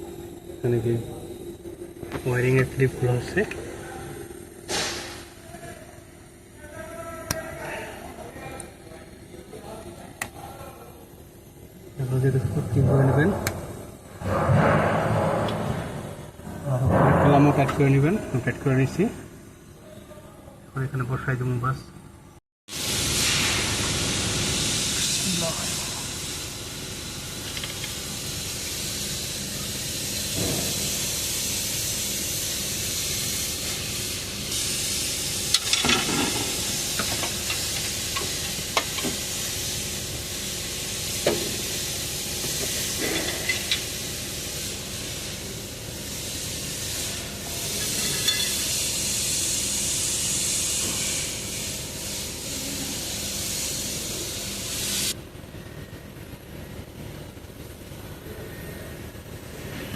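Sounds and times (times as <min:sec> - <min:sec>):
steady hiss: 0:22.7 - 0:55.2.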